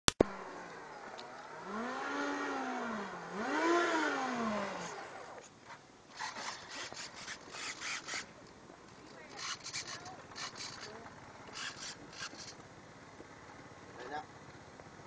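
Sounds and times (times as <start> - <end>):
model jet motor revving: 1.6 - 5.2, 6.1 - 8.3, 9.4 - 12.6
short scraping sounds: 4.7 - 8.3, 9.3 - 12.6.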